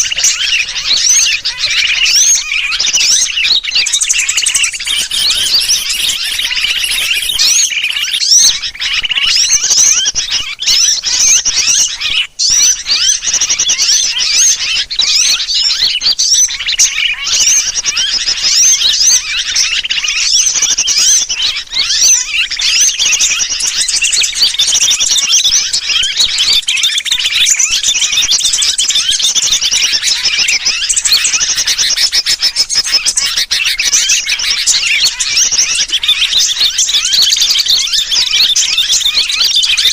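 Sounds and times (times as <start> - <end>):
bird distress calls: 0.0 - 39.9
small birds chirping and trilling: 0.0 - 39.9.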